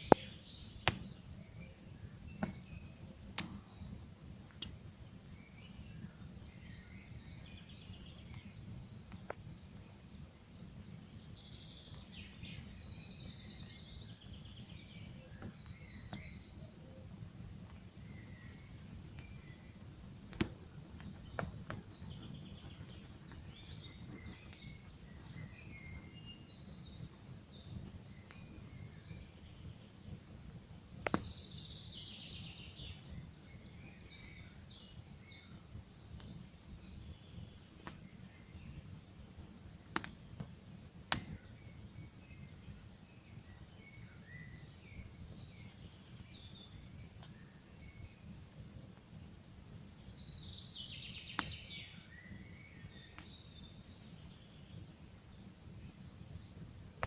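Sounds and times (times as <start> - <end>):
songbirds singing: 0.0 - 57.0
campfire crackling: 18.6 - 25.4, 39.7 - 41.8.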